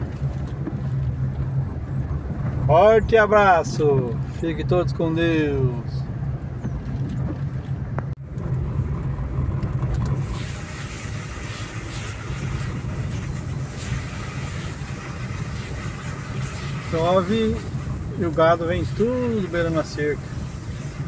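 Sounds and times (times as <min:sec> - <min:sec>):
car engine and road noise: 0:00.0 - 0:21.0
steady hiss: 0:10.2 - 0:21.0.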